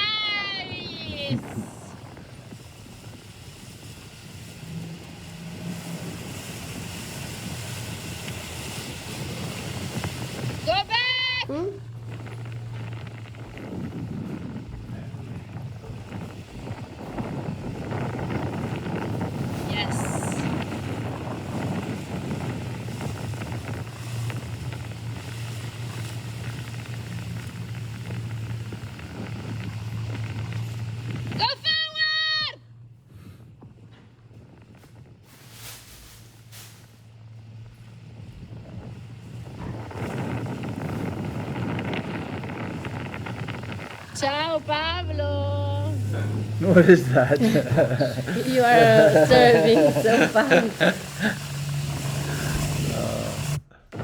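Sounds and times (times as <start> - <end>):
wind on microphone: 0.0 - 32.0, 33.0 - 54.0
motorboat engine hum: 0.0 - 54.0
rushing water from waves: 1.5 - 13.6, 14.8 - 31.2, 45.9 - 54.0.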